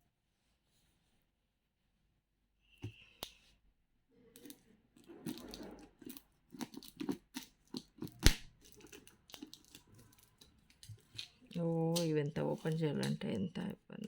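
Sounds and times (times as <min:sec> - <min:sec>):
packaging tearing and crinkling: 0:05.2 - 0:12.1.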